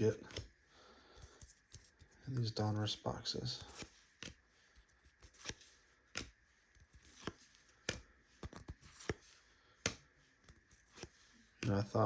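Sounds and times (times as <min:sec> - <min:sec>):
trading cards swishing and tapping: 0:03.6 - 0:12.0.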